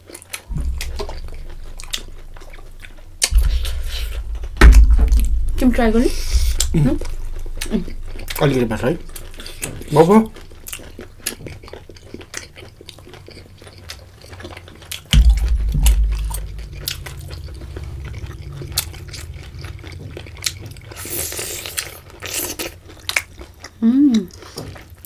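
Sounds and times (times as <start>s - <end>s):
chewing: 0.0s - 4.5s, 6.2s - 25.0s
heavy low thump: 0.5s - 12.1s, 15.1s - 22.3s
short low rumble: 0.5s - 12.2s, 15.1s - 22.7s.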